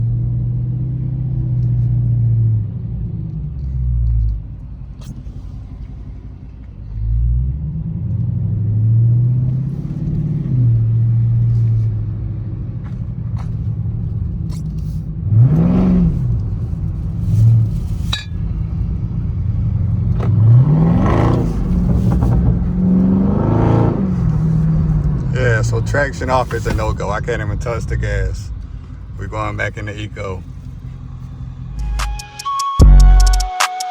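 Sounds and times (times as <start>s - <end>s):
car engine running: 0.0s - 33.4s
engine revving sharply: 15.3s - 17.9s, 18.7s - 33.5s.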